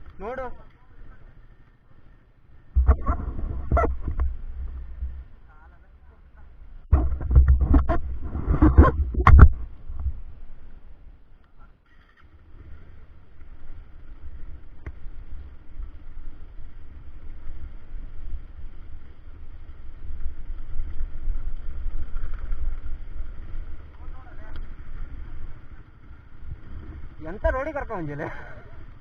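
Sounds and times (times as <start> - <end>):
motorcycle engine rumble: 0.0 - 29.0
wind on microphone: 2.7 - 5.4, 6.8 - 10.6.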